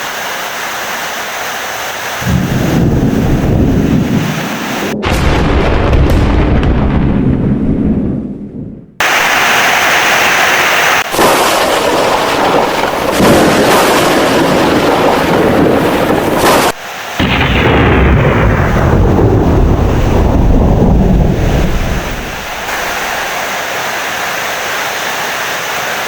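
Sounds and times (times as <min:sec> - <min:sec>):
heavy rain: 0:00.0 - 0:06.5, 0:09.0 - 0:26.0
deep rolling thunder: 0:02.2 - 0:09.2, 0:11.1 - 0:23.1.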